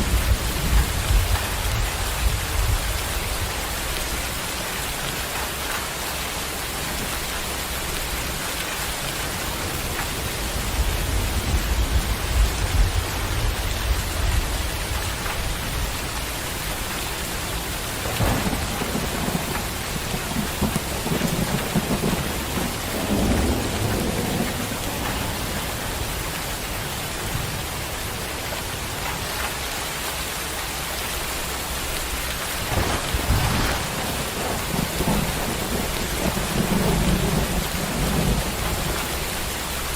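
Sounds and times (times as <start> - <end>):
thunder rumbling: 0.0 - 5.7, 7.7 - 28.2, 32.1 - 39.9
steady rain falling: 0.0 - 39.9
thunder cracks: 17.9 - 25.8, 32.4 - 39.1.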